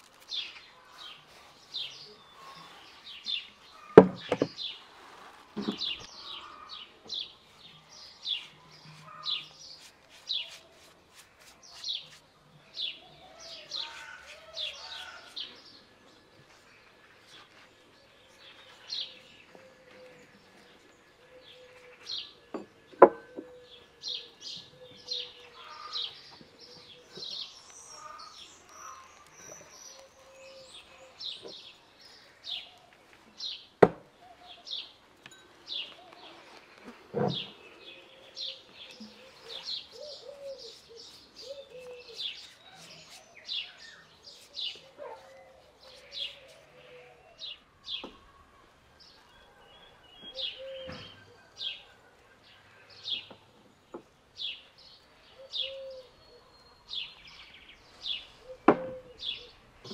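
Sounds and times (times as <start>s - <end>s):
small birds chirping: 0.0s - 59.9s
dull knock: 4.0s - 4.6s.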